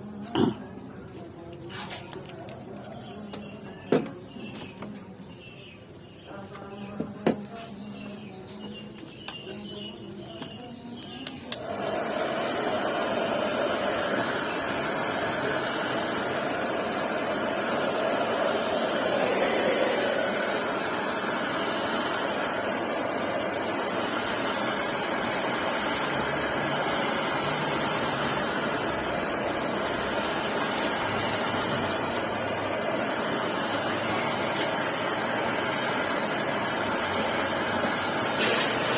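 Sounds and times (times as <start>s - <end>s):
whooshing machine noise: 11.5s - 38.9s.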